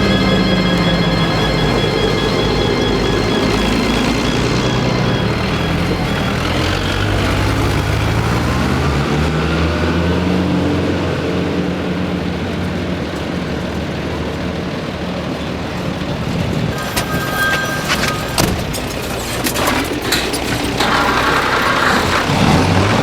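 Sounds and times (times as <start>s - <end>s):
engine note rising in pitch: 0.0s - 12.5s, 20.8s - 23.0s
vehicle engines running: 0.0s - 23.0s.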